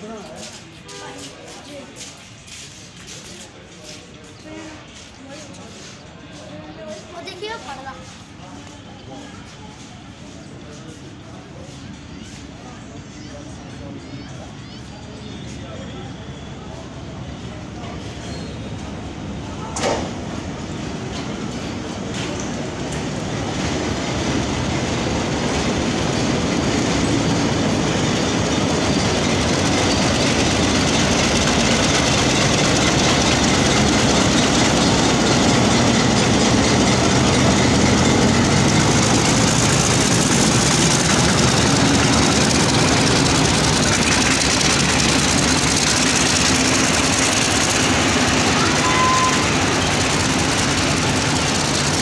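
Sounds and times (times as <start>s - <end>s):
diesel locomotive engine: 0.0s - 52.0s
steel wheels rumbling on rails: 16.7s - 52.0s.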